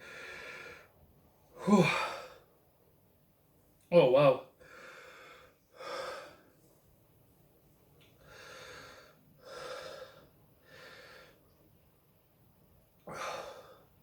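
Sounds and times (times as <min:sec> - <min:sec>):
man breathing hard: 0:00.0 - 0:01.0, 0:04.6 - 0:06.5, 0:08.2 - 0:11.4, 0:13.1 - 0:14.0.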